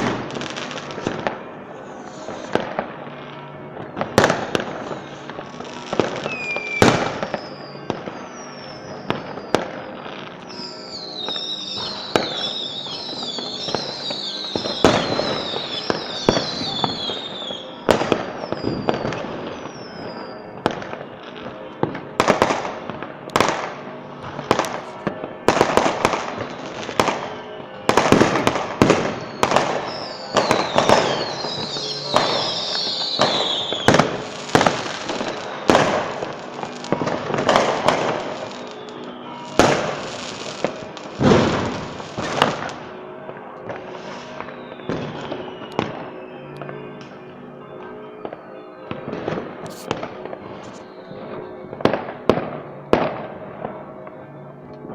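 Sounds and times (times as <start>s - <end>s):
fireworks whistling: 0.0s - 42.9s, 43.7s - 53.6s
fireworks bursting with bangs: 0.0s - 47.2s, 48.2s - 53.8s.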